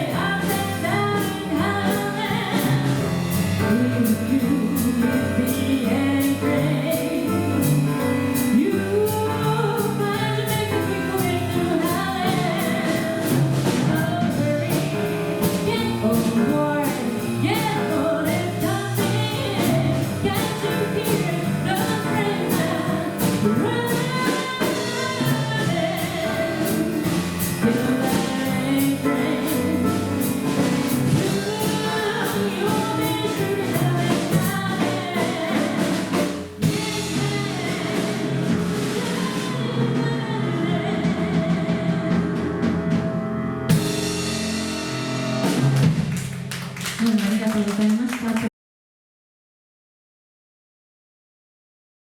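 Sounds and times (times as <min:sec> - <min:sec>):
voices singing over jazz band: 0:00.0 - 0:42.7
drum kit cymbal strokes: 0:43.7 - 0:45.8.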